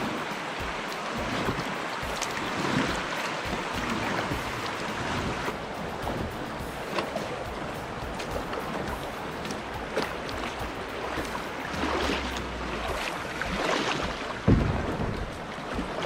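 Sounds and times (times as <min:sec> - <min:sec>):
water sloshing around kayak: 0:00.0 - 0:16.0
wind buffeting microphone: 0:00.0 - 0:16.0
low thump: 0:14.0 - 0:15.9.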